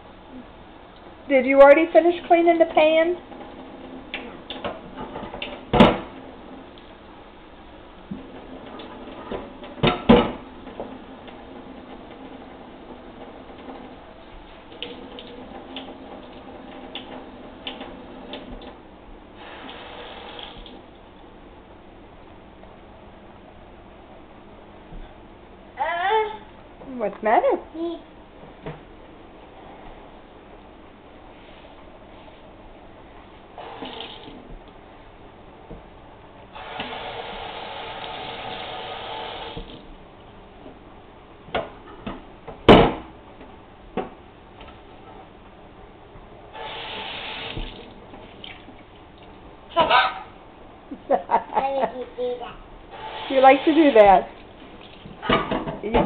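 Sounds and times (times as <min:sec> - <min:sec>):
sink tap running: 0:10.6 - 0:18.8, 0:19.4 - 0:20.8, 0:33.6 - 0:34.4, 0:36.6 - 0:39.8, 0:46.6 - 0:48.9, 0:52.9 - 0:55.1
running water: 0:19.4 - 0:20.9, 0:46.6 - 0:49.4, 0:52.9 - 0:55.5
pan washed in sink water: 0:52.9 - 0:55.3.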